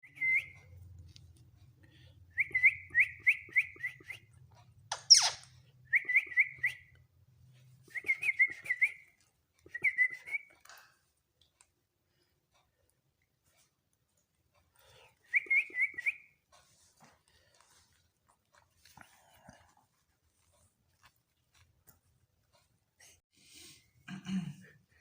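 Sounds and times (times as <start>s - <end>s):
parrot whistling: 4.9s - 6.9s.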